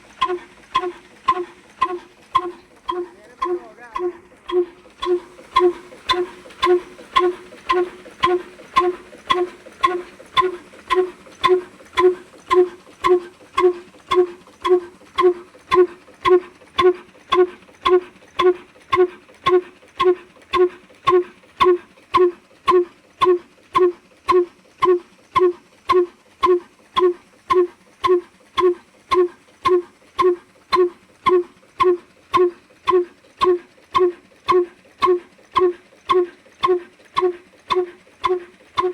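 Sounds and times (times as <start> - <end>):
diesel engine exhaust pops: 0.0 - 38.9
faint ticking: 0.0 - 38.9.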